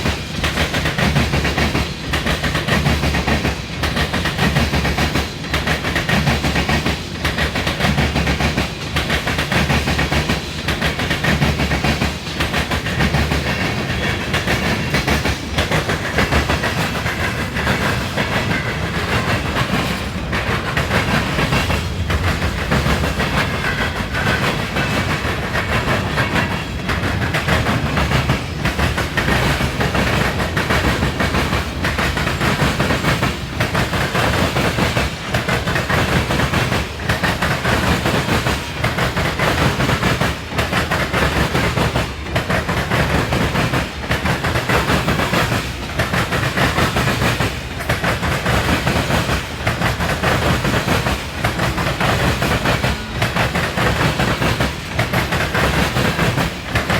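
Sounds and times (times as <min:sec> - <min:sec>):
steel wheels clattering over rail joints: 0:00.0 - 0:56.9.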